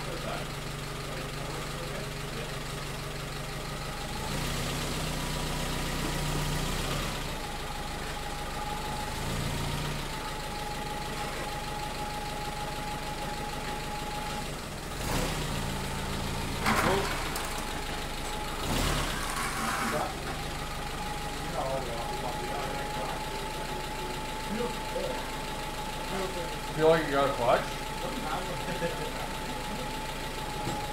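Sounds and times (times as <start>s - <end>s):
jeep engine running: 0.0s - 30.9s
thin steady whine: 19.6s - 30.9s.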